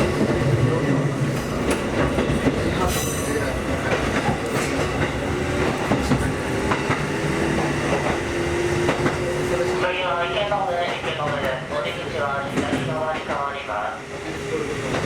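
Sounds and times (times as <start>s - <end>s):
rail joint clicks: 0.0s - 9.8s, 10.8s - 15.0s
train wheels rumbling on rail: 0.0s - 15.0s.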